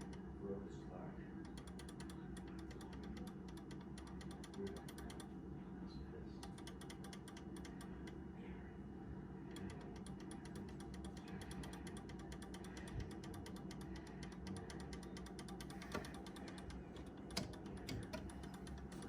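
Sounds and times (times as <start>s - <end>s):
clock movement ratcheting clicks: 1.5s - 5.3s, 6.4s - 8.2s, 9.5s - 19.0s.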